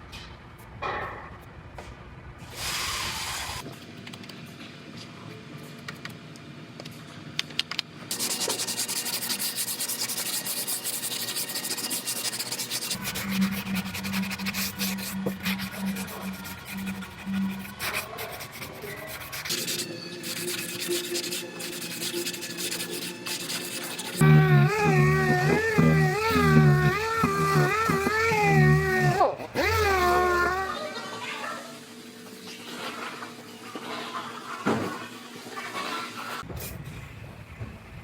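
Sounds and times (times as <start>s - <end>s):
power sander on sheet metal: 8.1s - 31.0s
low motor hum: 10.8s - 21.9s, 24.1s - 30.8s
music: 12.9s - 30.7s.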